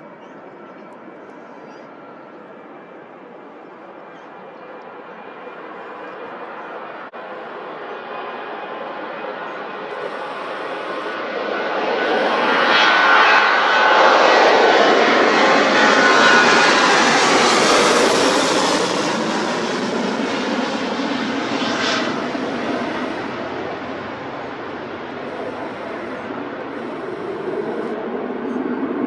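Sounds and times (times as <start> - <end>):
jet engines at takeoff: 0.0 - 29.0
jet whine dropping in pitch: 9.6 - 29.0.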